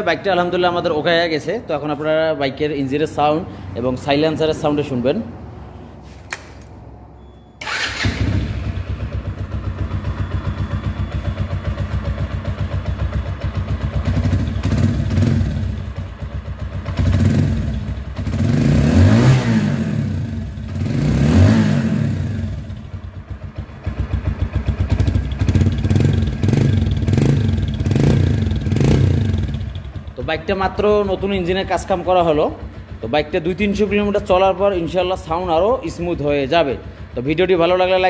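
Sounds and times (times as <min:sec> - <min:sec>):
motorcycle engine idling and revving: 0:07.6 - 0:38.0.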